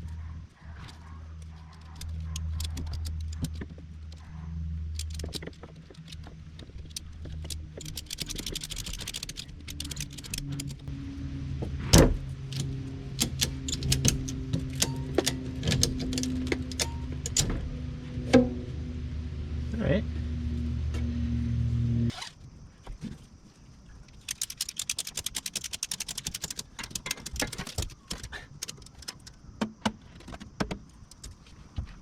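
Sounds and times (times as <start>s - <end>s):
metal hooks and buckles clattering: 0.0s - 10.9s, 12.4s - 17.8s, 24.1s - 32.0s
low steady hum: 0.0s - 22.1s
ratchet clicks: 0.9s - 10.9s, 12.5s - 17.5s, 24.1s - 29.4s.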